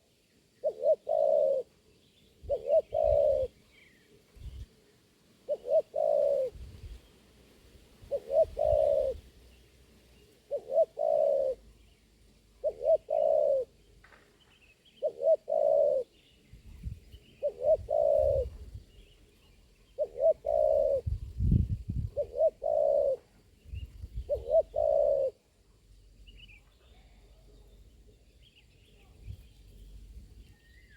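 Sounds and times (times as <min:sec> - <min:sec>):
dove cooing: 0:00.0 - 0:01.7, 0:02.4 - 0:03.6, 0:05.4 - 0:07.0, 0:08.0 - 0:09.4, 0:10.4 - 0:11.7, 0:12.6 - 0:13.8, 0:15.0 - 0:16.2, 0:17.4 - 0:18.8, 0:19.9 - 0:25.5.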